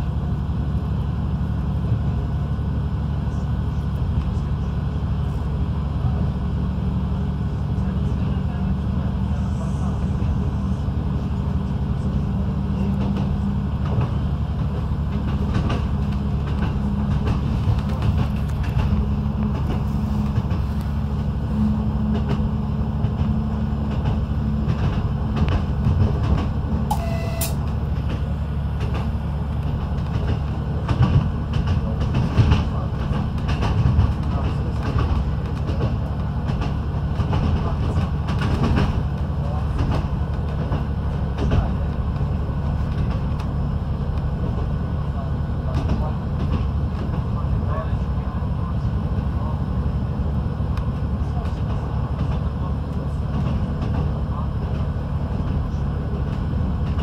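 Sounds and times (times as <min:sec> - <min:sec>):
train engine and wheel rumble: 0:00.0 - 0:57.0
rail clicks: 0:07.6 - 0:57.0
short high tone: 0:26.9 - 0:27.6.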